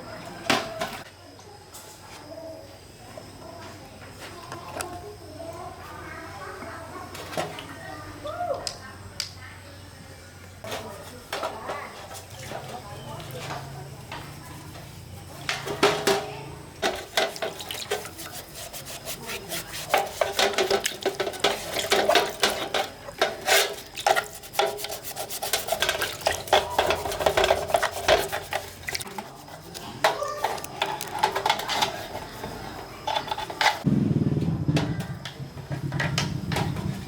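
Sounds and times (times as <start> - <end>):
metal scraping and clinking: 15.7 - 33.9.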